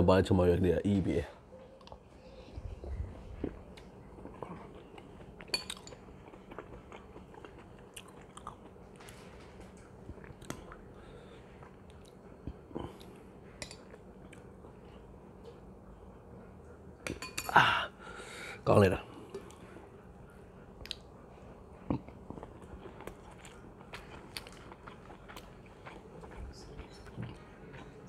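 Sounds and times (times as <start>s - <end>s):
person chewing: 2.8s - 15.0s, 21.8s - 28.0s.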